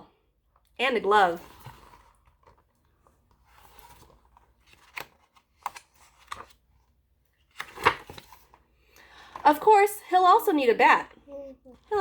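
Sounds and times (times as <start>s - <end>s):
paper rustling: 1.3s - 8.7s
book page turning: 1.4s - 8.6s.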